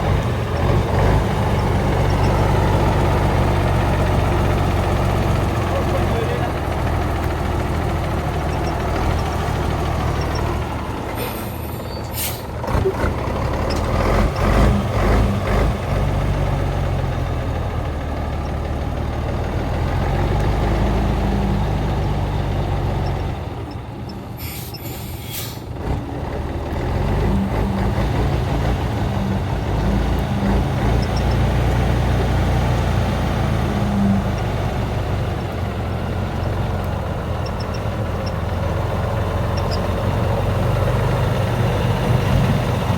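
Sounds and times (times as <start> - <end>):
heavy truck engine running: 0.0 - 42.9
air brake release hiss: 11.2 - 12.5, 24.4 - 25.7.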